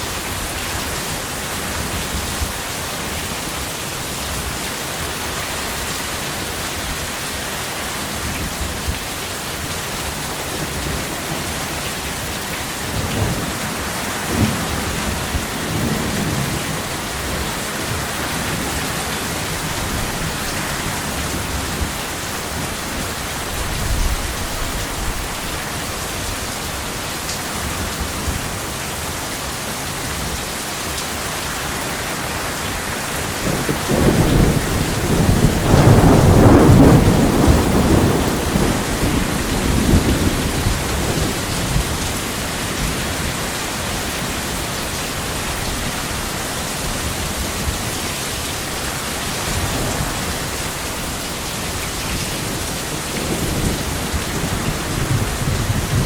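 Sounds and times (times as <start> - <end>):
heavy rain: 0.0 - 56.0
rolling thunder rumble: 12.9 - 26.4, 33.2 - 43.5, 52.0 - 56.0.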